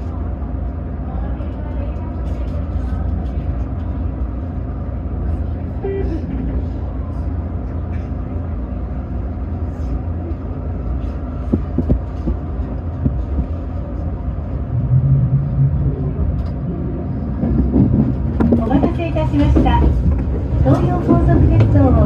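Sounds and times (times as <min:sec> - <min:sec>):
electric train rumbling: 0:00.0 - 0:22.0
brief low hum: 0:13.2 - 0:18.2.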